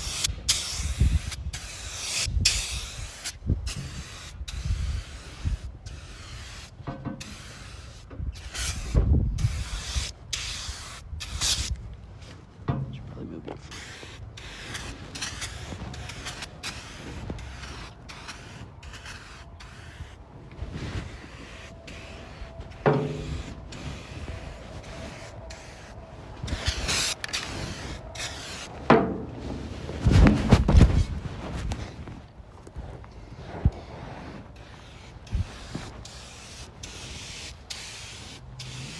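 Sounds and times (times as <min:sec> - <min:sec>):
aerosol spray paint hissing: 0:00.0 - 0:11.8, 0:13.6 - 0:28.7, 0:34.6 - 0:38.9
handling noise: 0:22.4 - 0:33.1.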